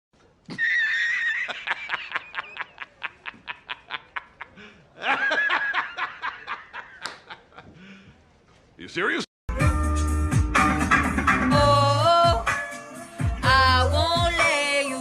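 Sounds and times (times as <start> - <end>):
high-pitched laugh: 0.5 - 7.7.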